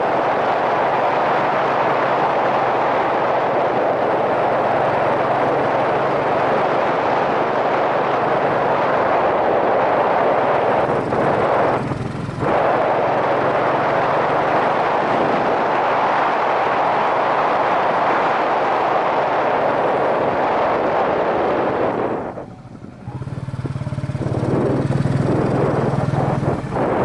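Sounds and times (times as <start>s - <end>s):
wind rushing over camera: 0.0s - 27.0s
motorcycle engine running: 1.4s - 15.8s, 21.0s - 27.0s.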